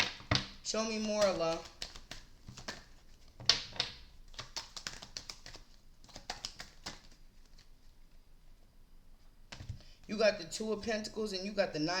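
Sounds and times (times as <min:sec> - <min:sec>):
cards clicking and tapping: 0:00.0 - 0:07.6.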